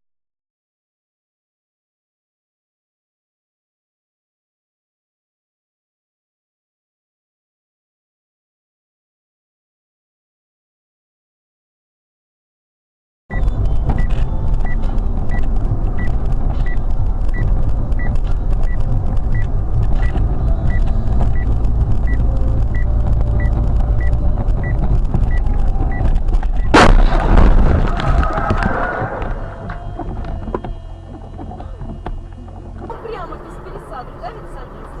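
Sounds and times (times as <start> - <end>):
vehicle rumble: 13.3 - 35.0
car crash bang: 26.6 - 29.8.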